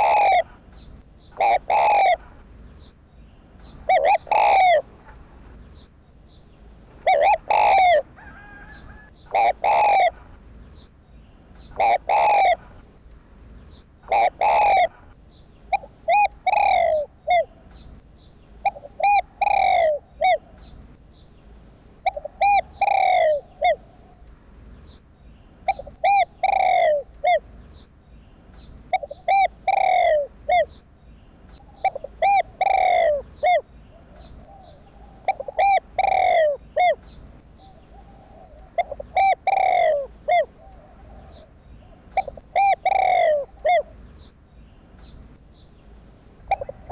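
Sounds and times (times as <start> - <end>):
dove cooing: 0.0 - 0.6, 1.3 - 2.4, 3.6 - 5.4, 6.9 - 10.4, 11.6 - 12.8, 14.0 - 17.7, 18.6 - 20.7, 22.0 - 24.2, 25.6 - 27.4, 28.9 - 30.8, 31.6 - 44.0, 46.4 - 46.9.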